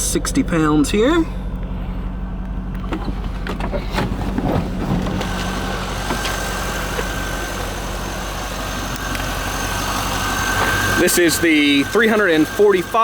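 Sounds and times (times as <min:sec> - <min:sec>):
car engine idling: 0:00.0 - 0:13.0
steady high whine: 0:00.0 - 0:13.0.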